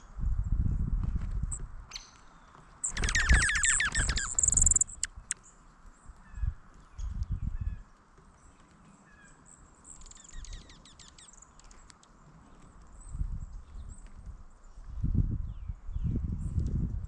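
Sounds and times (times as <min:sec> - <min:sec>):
faint bird chirps: 0:01.9 - 0:05.6, 0:09.0 - 0:12.1
songbird downward-sweeping notes: 0:02.8 - 0:05.4.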